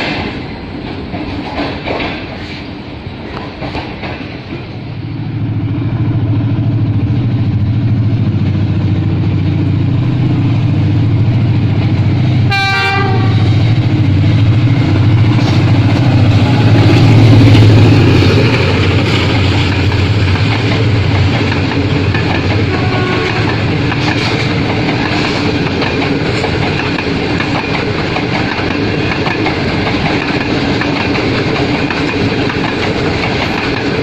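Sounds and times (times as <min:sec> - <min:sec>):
train wheels rumbling: 0:00.0 - 0:34.0
train horn blast: 0:12.4 - 0:13.8, 0:22.4 - 0:24.0.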